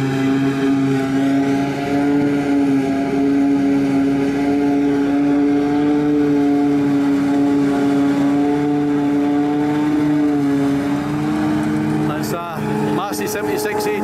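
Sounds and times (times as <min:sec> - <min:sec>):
farm machinery engine droning: 0:00.0 - 0:14.0.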